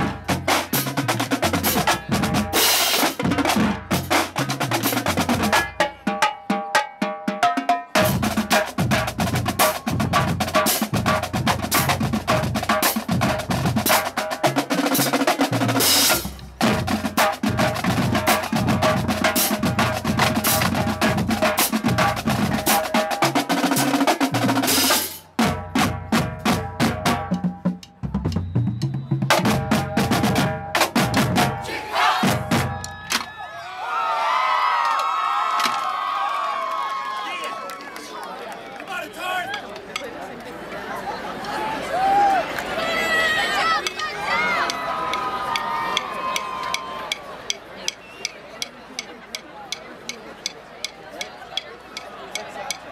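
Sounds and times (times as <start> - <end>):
marching bass drums: 0.0 - 6.6, 7.3 - 33.0
snare drum strokes and rolls: 0.0 - 33.2.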